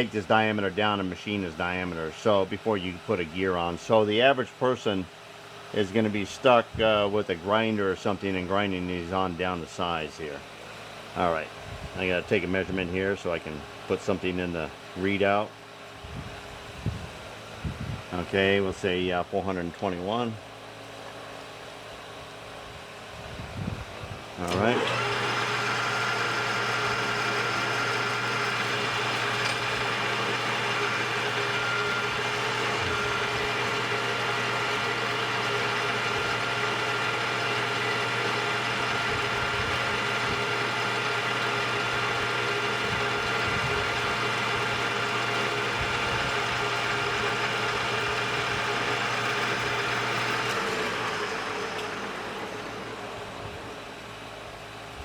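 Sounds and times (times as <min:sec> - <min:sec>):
metal lathe whining: 0:24.4 - 0:54.7.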